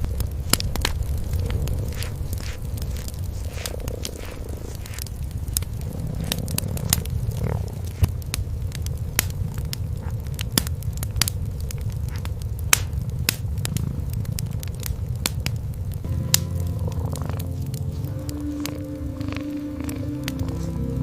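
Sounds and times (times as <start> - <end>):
cat purring: 0.0 - 10.4, 13.0 - 15.2, 16.1 - 21.0
wood fire crackling and popping: 0.0 - 21.0.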